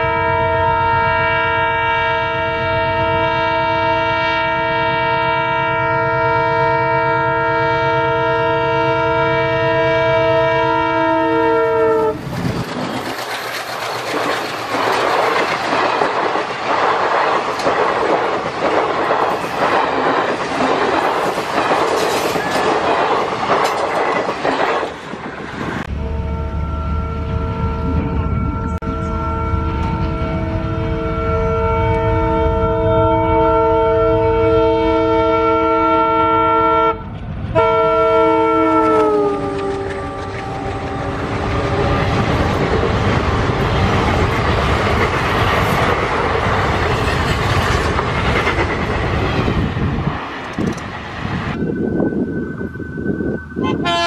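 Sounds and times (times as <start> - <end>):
locomotive horn blast: 0.0 - 12.2, 25.8 - 42.3, 53.6 - 54.0
wheels clacking over rail joints: 12.2 - 25.9, 38.8 - 51.5.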